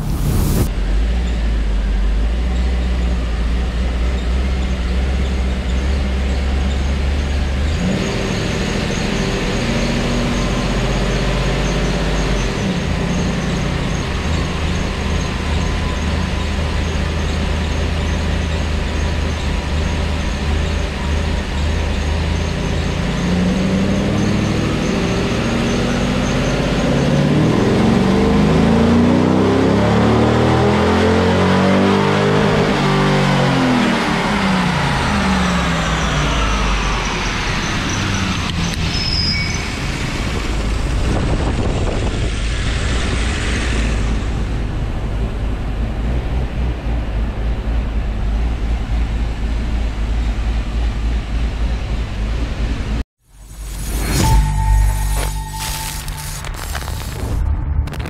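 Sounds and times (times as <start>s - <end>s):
car engine revving on a dyno: 6.3s - 14.7s, 16.8s - 38.5s
thin high whine: 53.3s - 58.0s.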